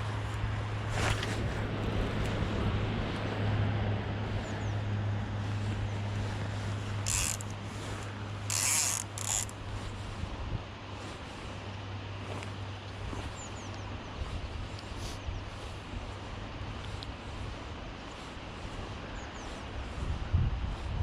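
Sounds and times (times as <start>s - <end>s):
river current rushing: 0.0s - 10.2s
short rasping bursts: 6.6s - 10.0s.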